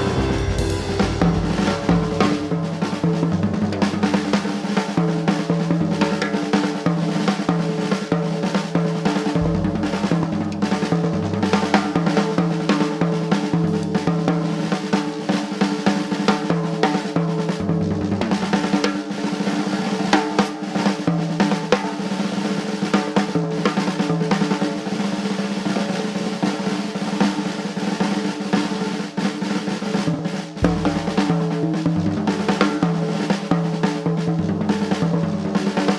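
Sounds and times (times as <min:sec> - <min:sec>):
band sustained low notes: 0:00.0 - 0:03.6, 0:09.4 - 0:10.3, 0:30.6 - 0:31.2
jazz drum kit: 0:00.0 - 0:21.8, 0:28.0 - 0:35.9.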